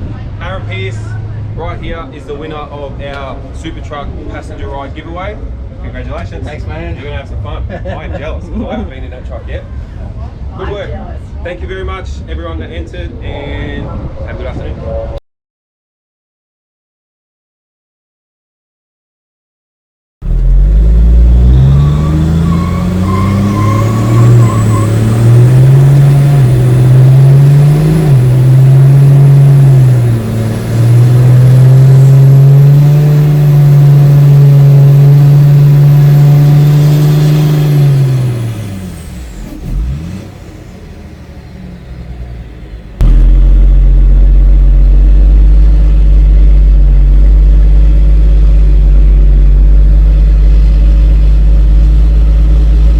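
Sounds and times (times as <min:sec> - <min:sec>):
low engine rumble: 0:00.0 - 0:15.2, 0:20.2 - 0:36.6, 0:37.6 - 0:52.9
turbo whine: 0:20.2 - 0:39.4, 0:43.0 - 0:52.9
diesel engine at full throttle: 0:20.2 - 0:52.9.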